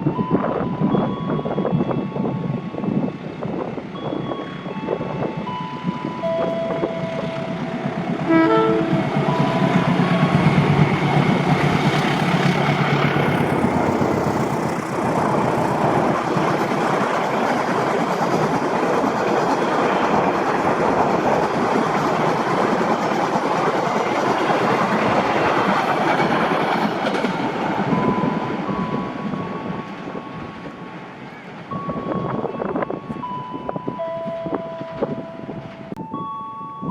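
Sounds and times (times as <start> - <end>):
train wagons rumbling and clattering: 0.0 - 36.9
locomotive engine: 5.7 - 32.9.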